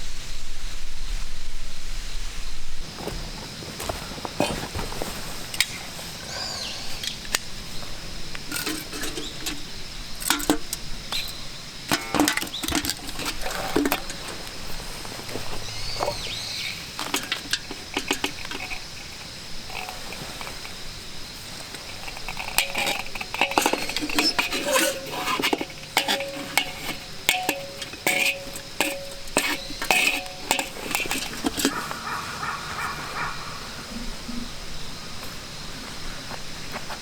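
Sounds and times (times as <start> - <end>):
camp cookware clinking: 4.5 - 32.6.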